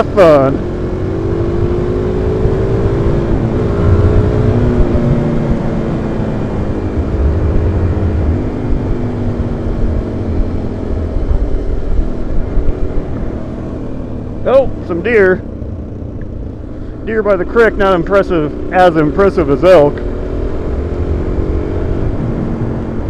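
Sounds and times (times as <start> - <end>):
motorcycle engine running: 0.0 - 23.0
wind buffeting microphone: 2.3 - 13.6.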